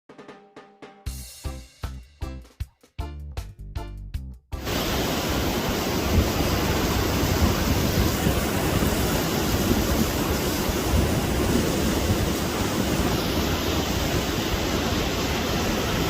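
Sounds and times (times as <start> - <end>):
drum beat: 0.1 - 4.3
wind buffeting microphone: 4.7 - 16.0.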